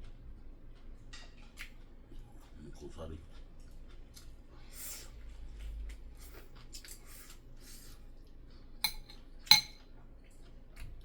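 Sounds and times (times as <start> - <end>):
faint eating sounds: 0.0 - 11.0
cutlery clinking against dish: 8.8 - 9.9.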